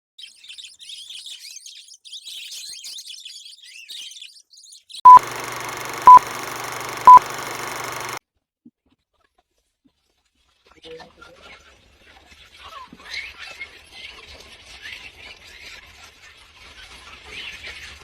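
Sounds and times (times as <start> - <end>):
loud electronic beeps: 5.1 - 8.2.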